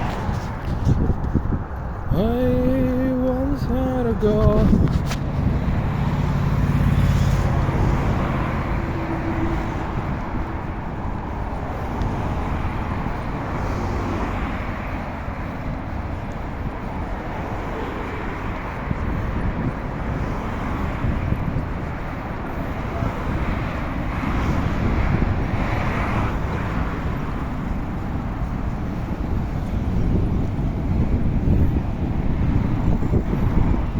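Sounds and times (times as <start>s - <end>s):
motor vehicle low hum: 0.0s - 33.9s
road traffic: 0.0s - 33.9s
wind noise: 0.0s - 33.9s.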